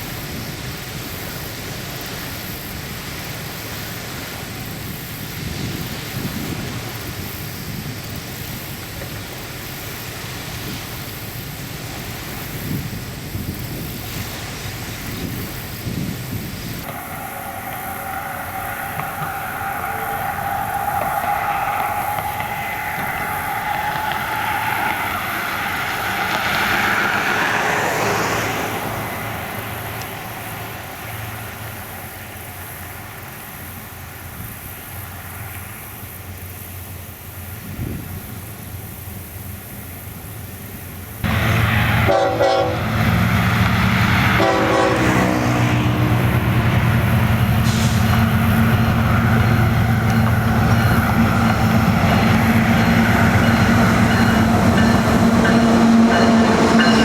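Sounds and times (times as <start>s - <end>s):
locomotive engines rumbling: 0.0s - 57.0s
train horn blasts: 16.8s - 32.0s, 41.2s - 57.0s.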